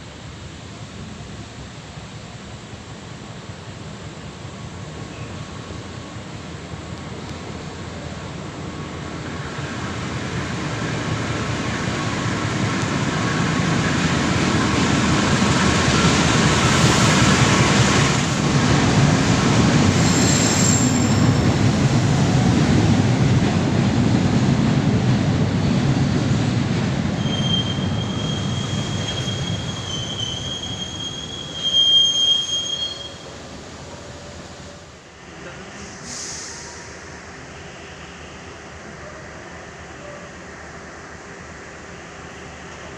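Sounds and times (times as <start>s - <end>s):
train wheels rumbling: 3.3s - 39.0s
train wheels squealing: 5.1s - 5.5s, 19.9s - 21.6s, 27.2s - 33.4s.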